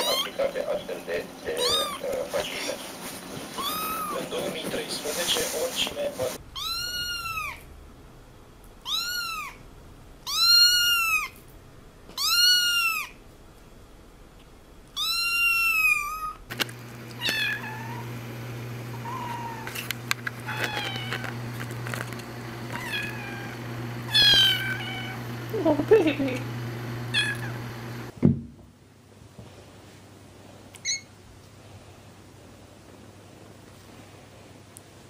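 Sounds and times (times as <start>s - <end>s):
kittens meowing: 0.0s - 0.4s, 1.5s - 2.2s, 3.6s - 4.3s, 6.5s - 7.7s, 8.8s - 9.6s, 10.2s - 11.4s, 12.1s - 13.2s, 14.9s - 16.5s, 17.2s - 18.1s, 19.0s - 19.8s, 20.4s - 21.4s, 22.7s - 25.2s, 27.1s - 27.6s
steady low hum: 0.0s - 12.2s, 15.8s - 30.7s.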